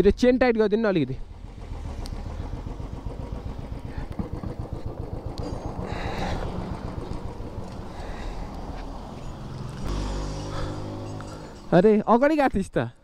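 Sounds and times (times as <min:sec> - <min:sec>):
motorcycle engine idling: 0:01.0 - 0:12.1.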